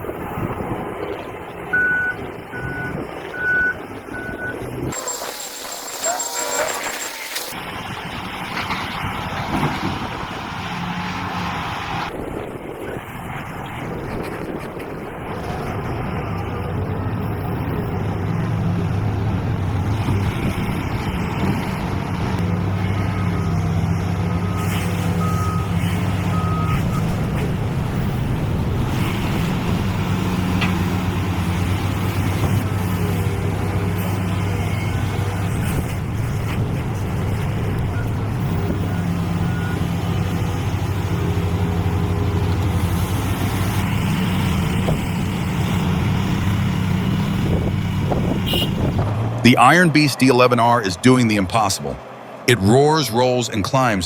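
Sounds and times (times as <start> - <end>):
diesel engine drone: 0.0 - 54.0
short beeps: 1.8 - 7.5.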